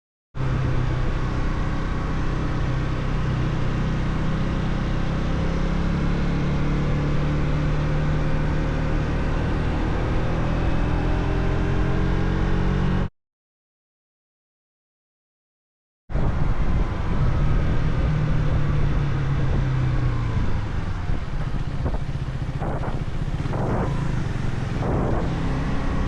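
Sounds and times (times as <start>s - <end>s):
road noise: 0.4s - 13.1s, 16.1s - 26.0s
wind noise: 16.1s - 26.0s
motorcycle engine running: 16.2s - 26.0s.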